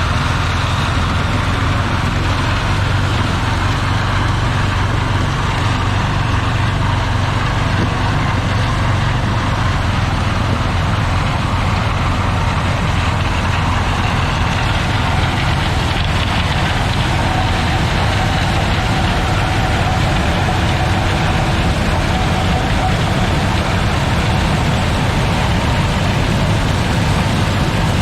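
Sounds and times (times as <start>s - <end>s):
combine harvester engine drone: 0.0s - 28.0s.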